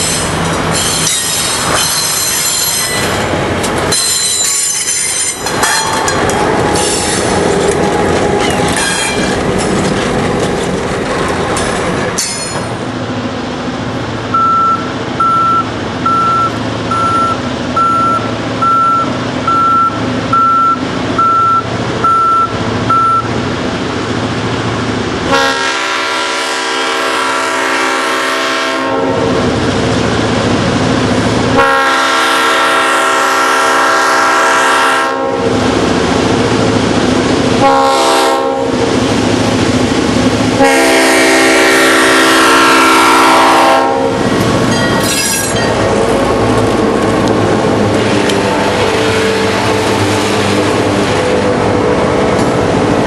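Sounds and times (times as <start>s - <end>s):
wheels clicking over rail joints: 0.0s - 12.9s, 44.2s - 48.5s
train rumbling by: 0.0s - 53.0s
locomotive air horn: 25.3s - 29.3s, 31.6s - 35.5s, 37.6s - 38.7s, 40.6s - 44.2s.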